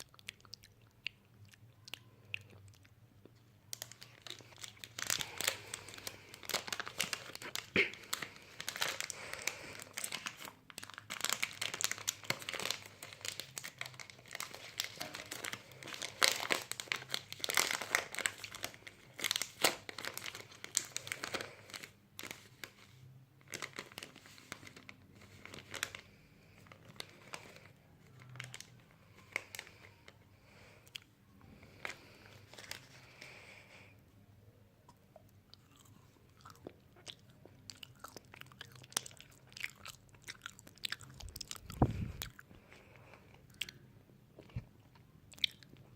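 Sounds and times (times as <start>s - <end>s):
close crunching and crinkling: 1.9s - 22.8s, 23.4s - 33.8s, 35.5s - 43.8s.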